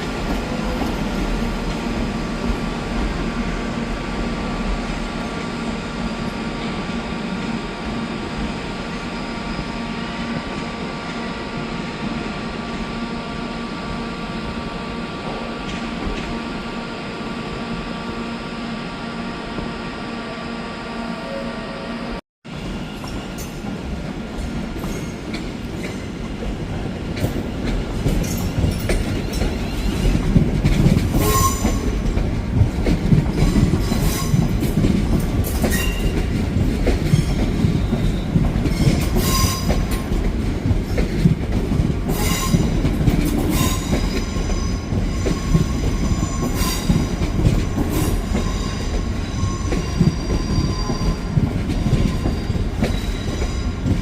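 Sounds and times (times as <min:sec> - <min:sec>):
train rumbling: 0:00.0 - 0:54.0
metallic wheel squeal: 0:47.8 - 0:51.4.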